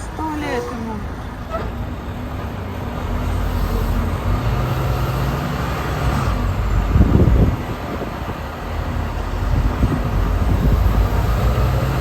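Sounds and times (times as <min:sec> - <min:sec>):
vehicle road noise rumble: 0:00.0 - 0:12.0.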